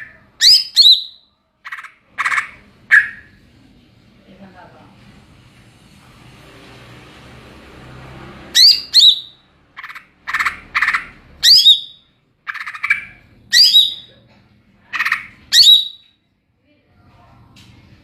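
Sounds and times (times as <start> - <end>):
bird whistled song: 0.0 - 1.3, 2.3 - 3.4, 8.6 - 14.1, 15.5 - 16.2
buzzy bird chattering: 0.0 - 3.4, 8.6 - 14.1, 14.9 - 16.0.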